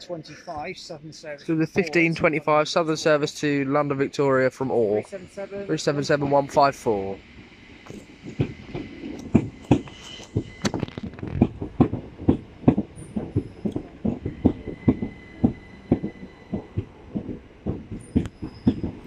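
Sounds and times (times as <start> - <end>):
train wheels clattering over joints: 7.3 - 19.0.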